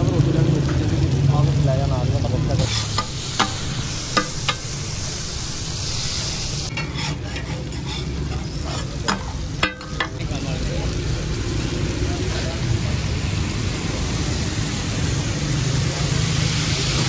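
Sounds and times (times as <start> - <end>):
chicken sizzling in oil: 0.0 - 17.0
metal spatula scraping griddle: 2.6 - 10.2.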